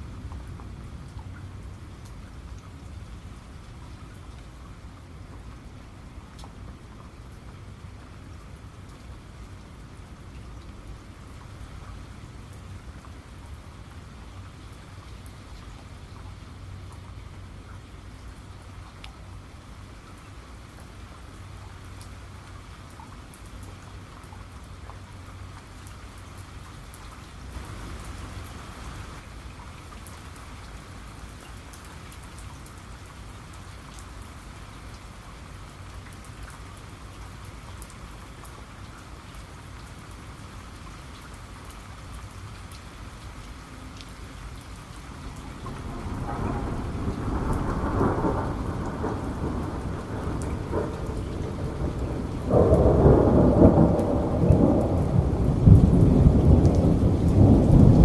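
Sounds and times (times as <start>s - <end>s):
raindrops pattering on a surface: 0.0s - 58.0s
steady rain: 0.0s - 58.0s
thunder rumbling: 45.4s - 58.0s.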